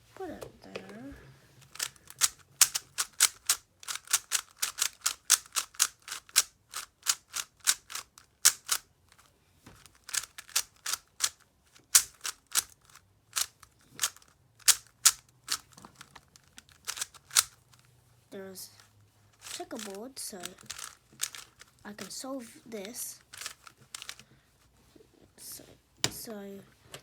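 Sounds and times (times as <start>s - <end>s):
puzzle cube clicking: 1.6s - 9.2s, 9.8s - 17.7s, 19.4s - 22.1s, 23.2s - 24.2s.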